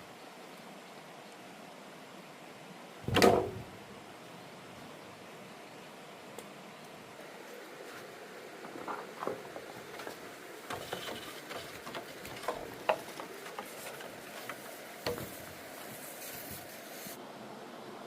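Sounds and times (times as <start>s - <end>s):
faint hiss: 0.0s - 18.0s
hard objects clicking and knocking: 9.0s - 15.4s.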